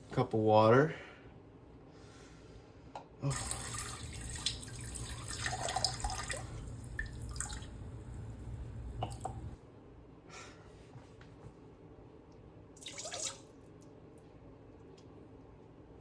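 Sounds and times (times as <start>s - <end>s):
water running from a tap: 3.3s - 9.6s, 12.8s - 13.5s.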